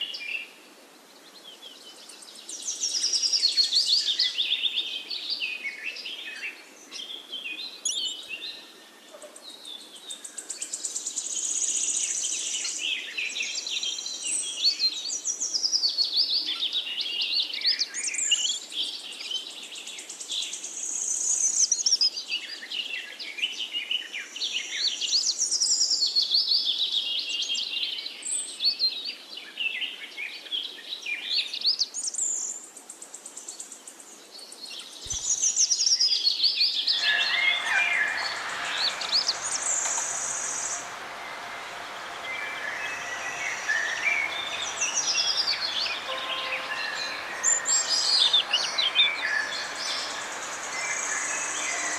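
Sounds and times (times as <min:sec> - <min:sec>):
small birds chirping and trilling: 0:34.3 - 0:51.9.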